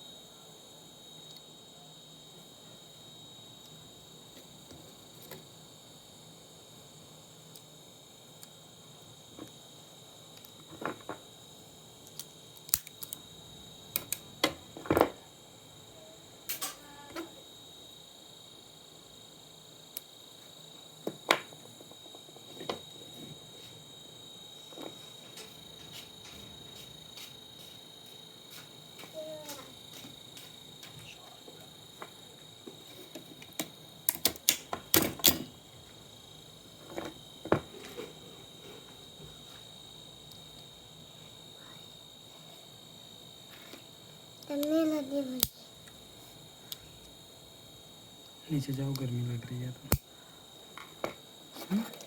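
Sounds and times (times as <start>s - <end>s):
faint high whine: 0.0s - 33.4s
faint high-pitched tone: 15.9s - 17.3s.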